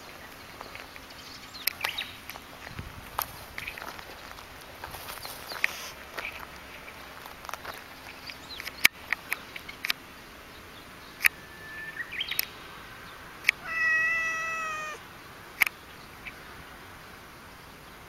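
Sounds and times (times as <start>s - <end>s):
cat meowing: 13.6s - 15.0s.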